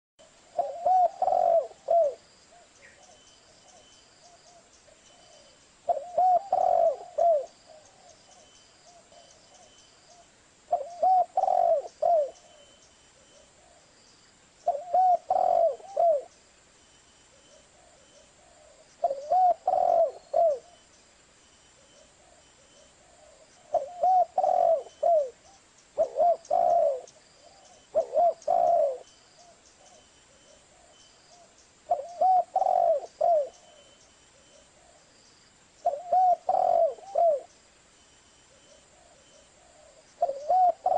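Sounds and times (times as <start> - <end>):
dove cooing: 0.2 - 13.8, 14.6 - 16.4, 17.3 - 20.8, 21.8 - 35.1, 35.8 - 37.6, 38.5 - 40.9.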